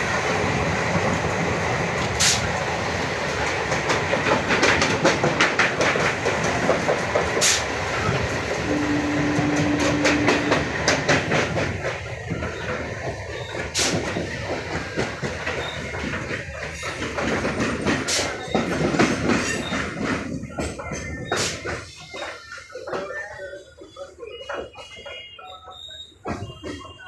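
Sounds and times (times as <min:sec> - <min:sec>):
train rumbling on rails: 0:00.0 - 0:27.0
wheels clacking over rail joints: 0:03.2 - 0:23.2.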